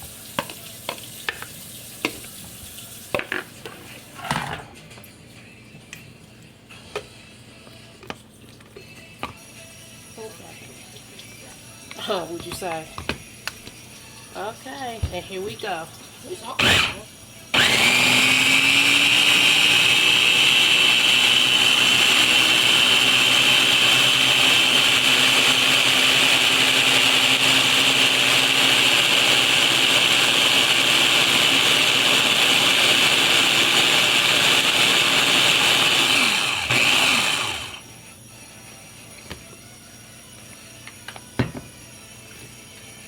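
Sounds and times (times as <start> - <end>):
electric blender whining: 16.4 - 43.0.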